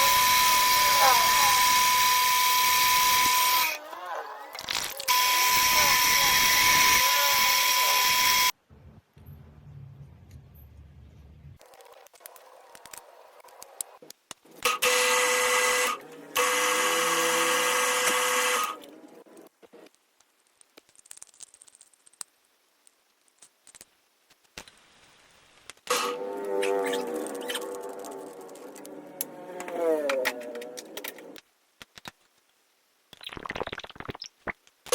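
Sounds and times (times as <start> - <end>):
electric power tool humming: 5.1 - 8.5, 14.8 - 18.8.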